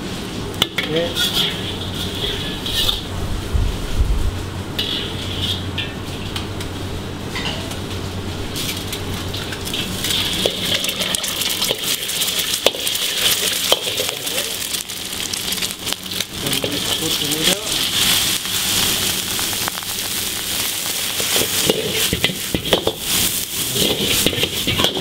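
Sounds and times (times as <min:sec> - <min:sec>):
steady low hum: 0:00.0 - 0:25.0
metal ladle scraping wok: 0:00.6 - 0:03.2, 0:04.8 - 0:06.4, 0:08.5 - 0:14.8, 0:20.4 - 0:25.0
egg sizzling in hot oil: 0:08.5 - 0:25.0.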